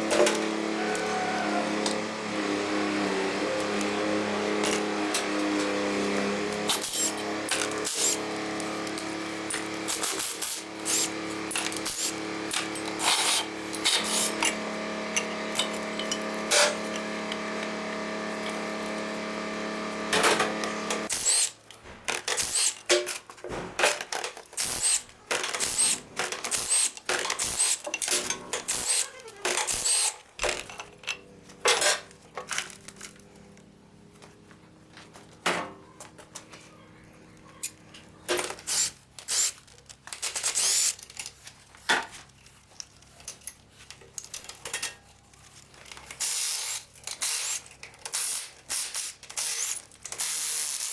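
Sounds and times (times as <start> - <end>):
metal tools clinking and clanking: 15.2 - 17.1, 42.6 - 45.1.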